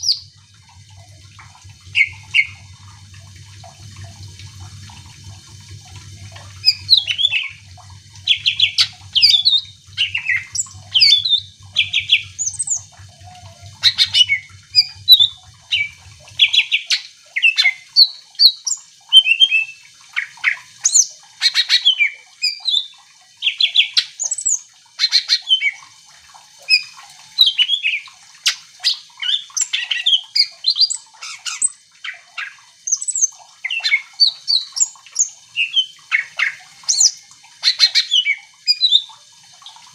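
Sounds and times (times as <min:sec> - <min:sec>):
low hum: 0:00.1 - 0:16.8
bird song with whistles and trills: 0:02.0 - 0:02.6, 0:06.6 - 0:07.6, 0:08.3 - 0:25.8, 0:26.7 - 0:39.1.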